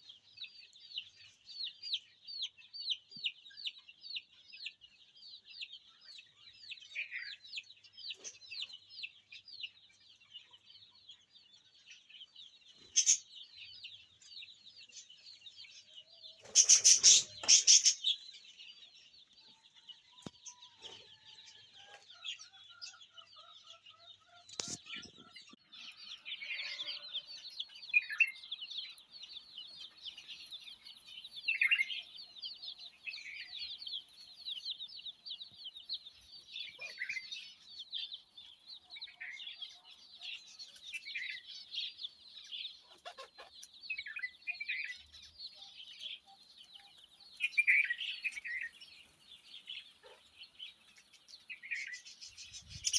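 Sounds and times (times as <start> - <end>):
small birds chirping: 0.0 - 52.9
sharp bird calls: 11.9 - 52.9.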